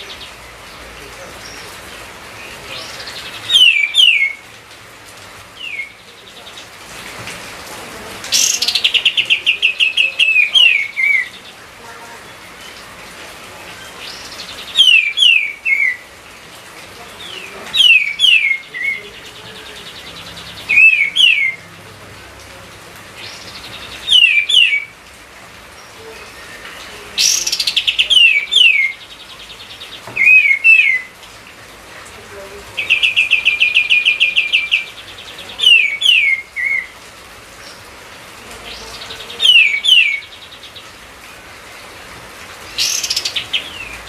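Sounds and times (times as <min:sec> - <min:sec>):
songbird whistling: 0:03.5 - 0:04.4, 0:14.8 - 0:16.0, 0:20.7 - 0:21.6, 0:24.0 - 0:24.9, 0:30.2 - 0:31.1.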